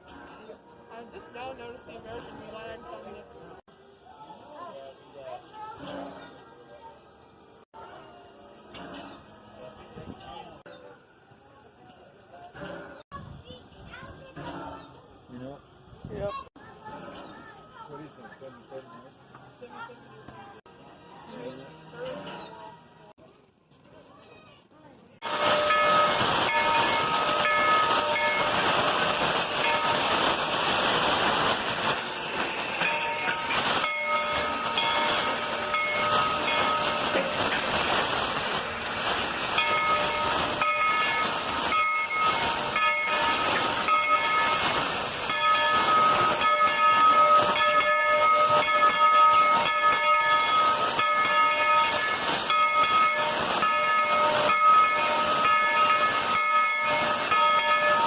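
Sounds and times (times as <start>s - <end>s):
steam locomotive hissing steam: 25.2s - 58.0s.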